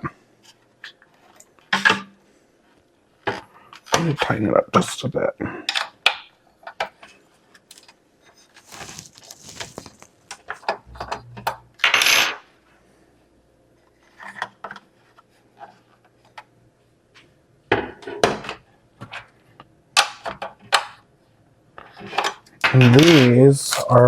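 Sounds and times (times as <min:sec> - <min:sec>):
scraping rustle: 0:08.3 - 0:10.3.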